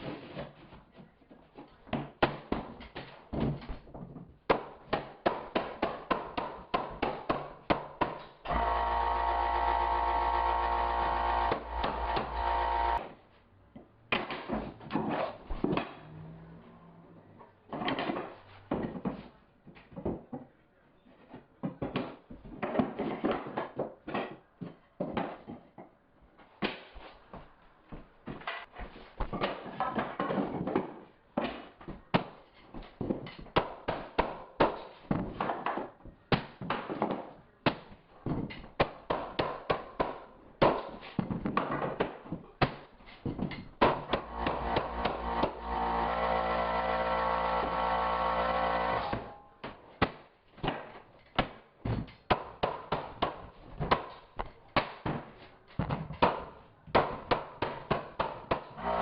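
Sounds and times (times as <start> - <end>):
motor hum: 8.5 - 13.0, 44.2 - 49.4
floor boards being knocked: 54.8 - 58.8.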